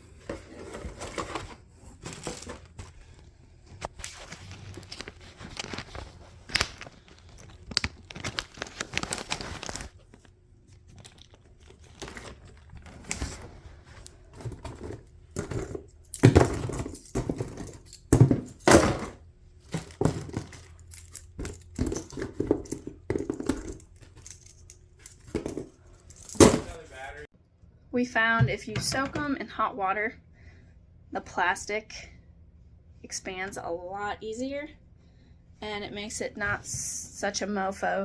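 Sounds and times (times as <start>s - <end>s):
plastic parts clicking and knocking: 14.3s - 26.7s.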